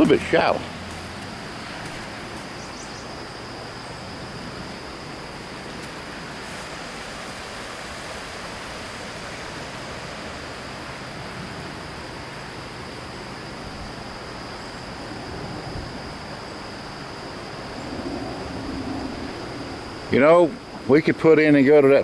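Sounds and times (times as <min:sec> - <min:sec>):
high insect drone: 0:00.0 - 0:22.0
river rapids rushing over rocks: 0:05.3 - 0:12.3.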